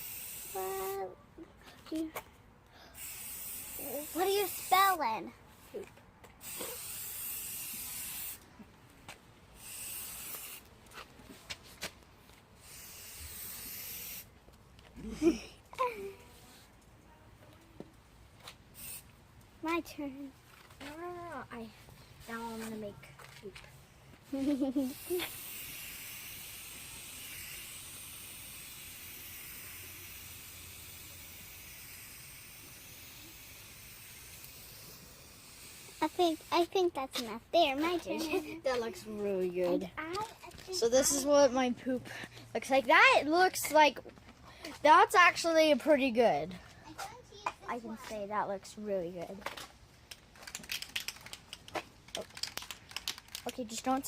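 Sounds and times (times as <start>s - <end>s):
spray paint can hissing: 0.0s - 1.1s, 3.0s - 5.0s, 6.4s - 8.4s, 9.6s - 10.7s, 12.6s - 14.3s, 18.7s - 19.1s, 24.4s - 36.8s, 50.4s - 54.0s.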